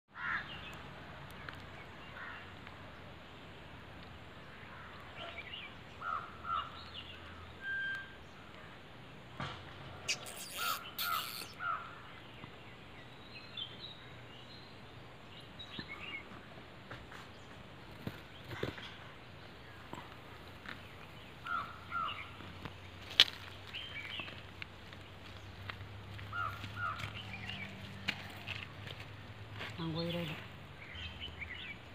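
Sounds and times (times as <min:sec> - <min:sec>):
outdoor background noise: 0:00.1 - 0:31.9
short bird calls: 0:10.1 - 0:12.0.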